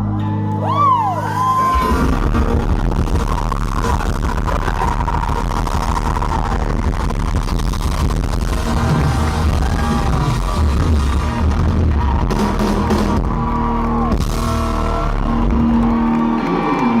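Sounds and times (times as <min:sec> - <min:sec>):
live pop-rock band playing: 0:08.5 - 0:17.0.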